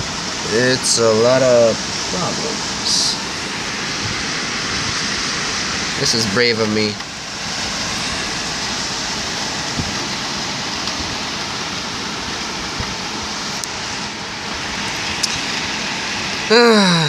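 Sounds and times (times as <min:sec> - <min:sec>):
heavy rain pouring: 0:00.0 - 0:17.0
raindrops tapping: 0:03.8 - 0:05.4, 0:06.0 - 0:13.8.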